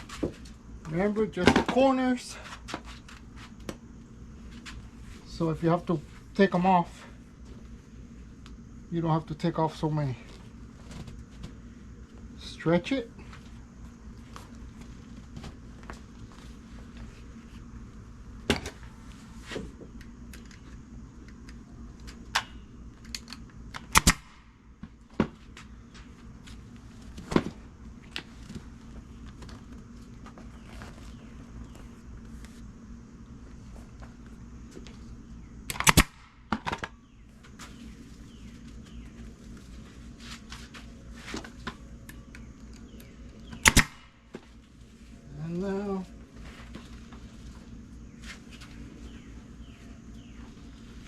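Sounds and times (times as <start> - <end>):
staple gun firing: 23.8 - 24.3, 35.7 - 36.2, 43.6 - 44.1.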